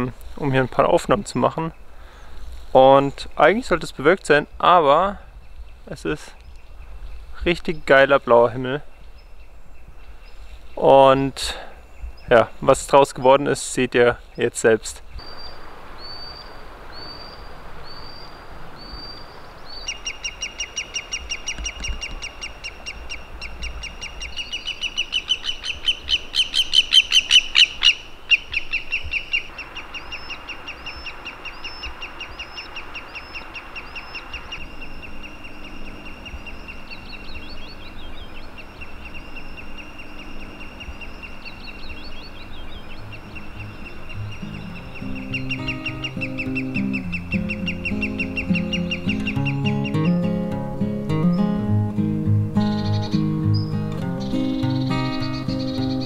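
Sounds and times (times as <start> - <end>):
birds chirping: 0.0 - 56.0
fast run of sharp bird calls: 15.2 - 50.2.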